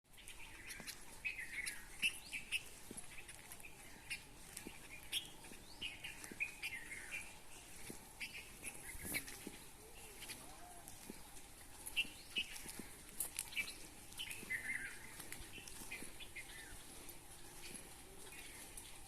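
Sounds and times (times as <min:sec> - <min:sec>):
birds chirping: 0:00.1 - 0:19.0.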